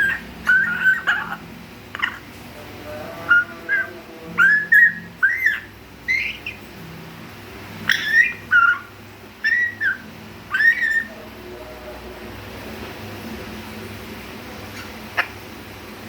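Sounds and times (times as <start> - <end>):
parrot whistling: 0.0 - 1.4, 3.3 - 6.6, 7.8 - 11.2.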